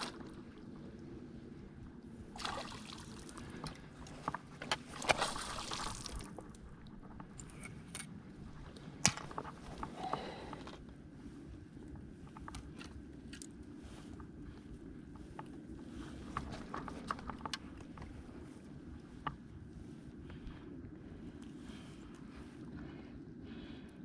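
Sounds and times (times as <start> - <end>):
water splashing and sloshing: 0.0 - 10.8
low steady rumble: 0.0 - 24.0.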